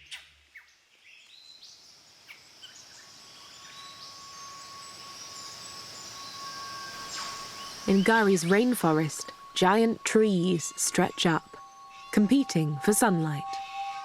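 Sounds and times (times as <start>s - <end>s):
insect chorus: 0.0s - 14.0s
thin steady tone: 2.9s - 14.0s.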